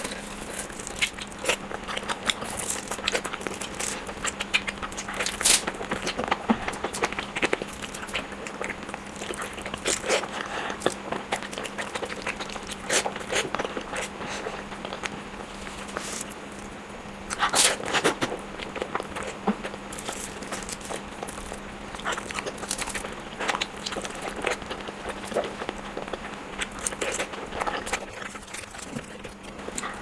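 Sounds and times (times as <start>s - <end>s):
faint steady hum: 0.0s - 30.0s
person chewing with wet smacks: 0.0s - 30.0s.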